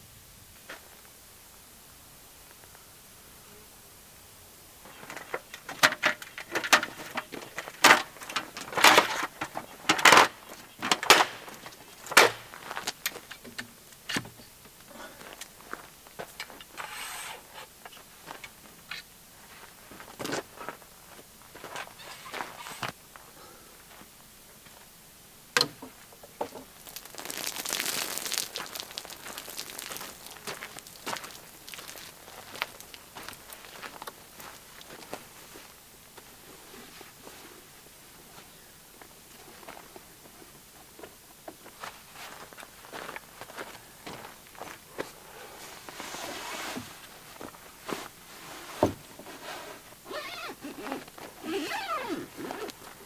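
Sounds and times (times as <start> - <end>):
crinkling and rustling: 4.9 - 13.2, 26.6 - 35.2.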